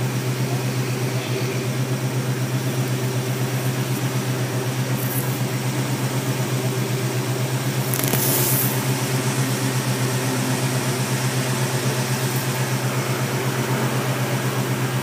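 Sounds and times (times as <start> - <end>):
car engine idling: 0.0 - 15.0
brief hiss: 7.8 - 8.9.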